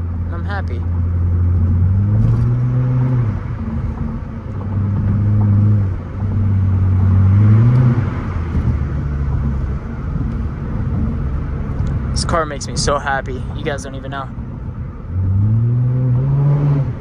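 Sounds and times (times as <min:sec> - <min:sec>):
loud car exhaust revving: 0:00.0 - 0:17.0.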